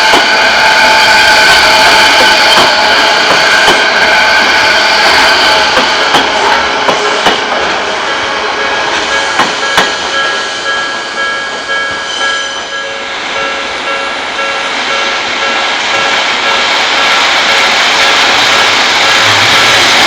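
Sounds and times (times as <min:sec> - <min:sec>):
level crossing bell ringing: 0:08.1 - 0:18.2
wheels clacking over rail joints: 0:09.0 - 0:20.0.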